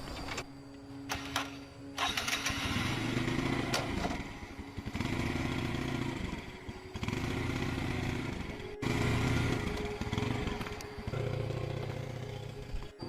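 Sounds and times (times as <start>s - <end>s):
motorcycle engine running: 1.1s - 13.0s.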